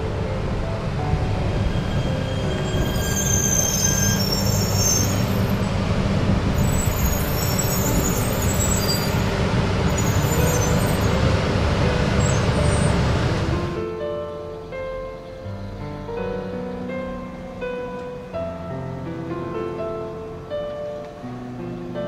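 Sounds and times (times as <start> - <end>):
train rumbling into station: 0.0 - 22.0
brakes squealing: 1.6 - 5.7, 6.5 - 11.4.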